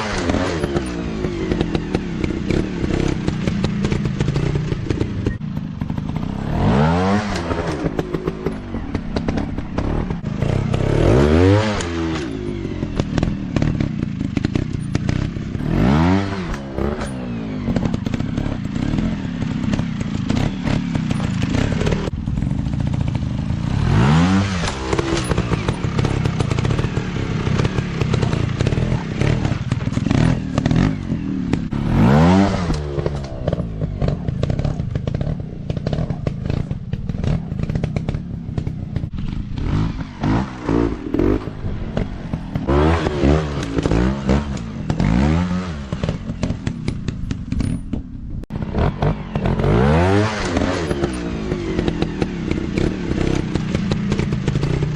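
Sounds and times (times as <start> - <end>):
dirt bike engines revving: 0.0 - 54.9
rattle and clatter of clicks: 16.5 - 23.2, 24.6 - 31.7, 45.9 - 48.3.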